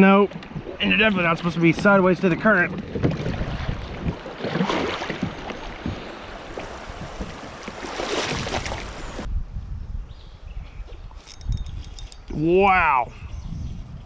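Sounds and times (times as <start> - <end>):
water rushing around a kayak: 0.0 - 9.3.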